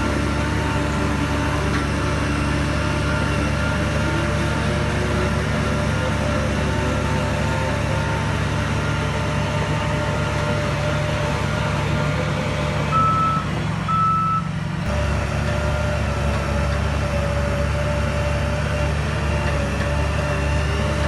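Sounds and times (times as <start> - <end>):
heavy diesel machinery running: 0.0 - 21.0
reversing alarm beeps: 12.9 - 14.5.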